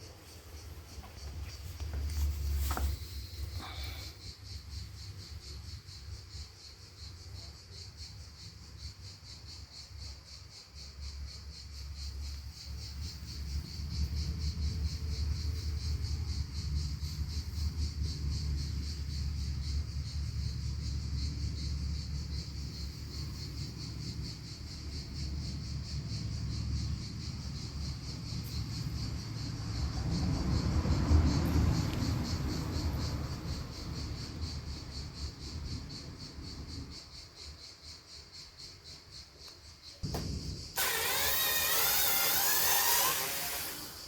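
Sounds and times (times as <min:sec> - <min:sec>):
insects chirring: 0:00.0 - 0:44.0
low background rumble: 0:12.0 - 0:37.2.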